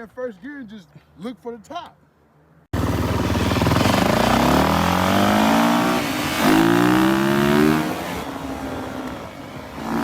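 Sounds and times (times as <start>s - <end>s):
dirt bike engine revving: 2.8s - 9.1s, 9.8s - 10.0s.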